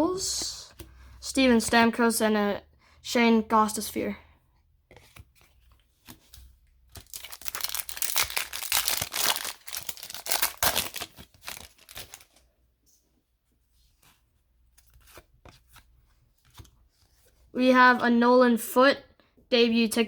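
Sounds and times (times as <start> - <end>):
wrapper tearing and crinkling: 6.9 - 12.4.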